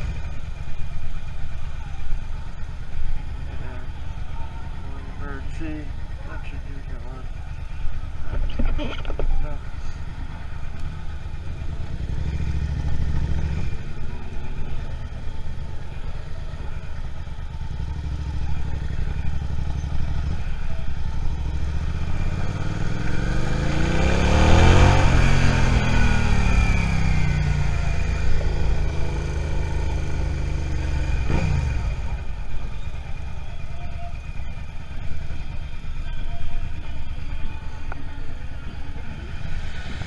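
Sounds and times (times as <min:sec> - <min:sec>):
motorcycle engine running: 0:00.0 - 0:40.0
vehicle passing by: 0:21.6 - 0:32.2, 0:38.8 - 0:40.0.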